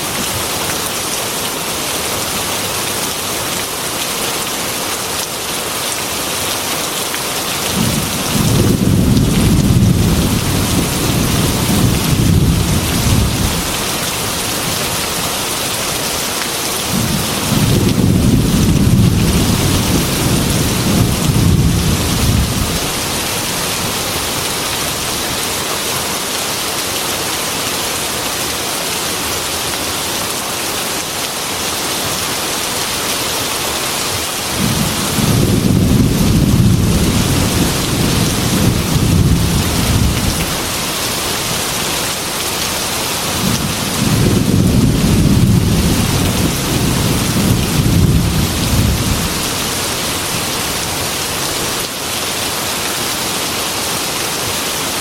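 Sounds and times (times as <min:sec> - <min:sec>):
heavy rain: 0:00.0 - 0:55.0
rolling thunder: 0:07.7 - 0:13.9, 0:16.9 - 0:23.3, 0:34.6 - 0:40.6, 0:43.4 - 0:49.5.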